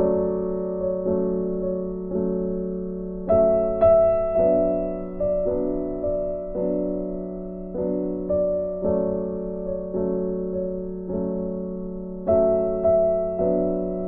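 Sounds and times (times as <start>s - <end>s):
soft piano music: 0.0s - 14.0s.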